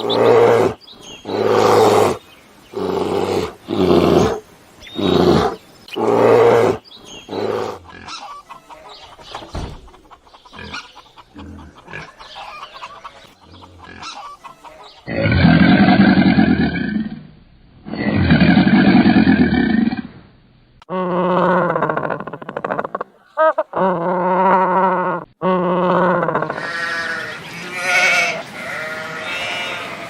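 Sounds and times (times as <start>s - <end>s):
tiger roaring: 0.0s - 8.0s, 15.1s - 20.2s
chicken clucking: 7.9s - 15.1s
long deep animal calls: 20.9s - 30.0s.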